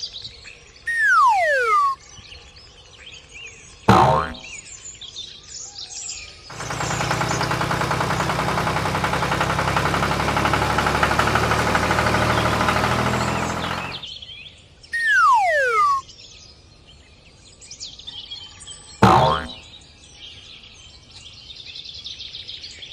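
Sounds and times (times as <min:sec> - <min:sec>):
birds chirping: 0:00.9 - 0:02.0, 0:15.0 - 0:16.0
downward gliding whistle: 0:00.9 - 0:02.0, 0:15.0 - 0:16.0
small engine running: 0:03.9 - 0:04.4, 0:06.5 - 0:14.0, 0:15.0 - 0:16.0, 0:19.0 - 0:19.6.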